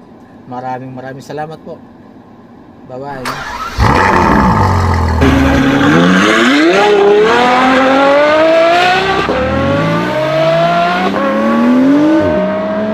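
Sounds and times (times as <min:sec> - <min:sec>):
car engine accelerating hard: 0:03.3 - 0:12.9.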